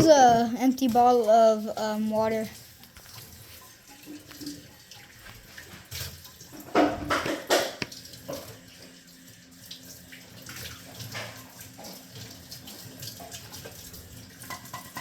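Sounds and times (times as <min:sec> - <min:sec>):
frying pan being washed: 0:00.0 - 0:15.0
tap running into sink: 0:04.0 - 0:08.6
splashes and knocks: 0:04.1 - 0:08.5.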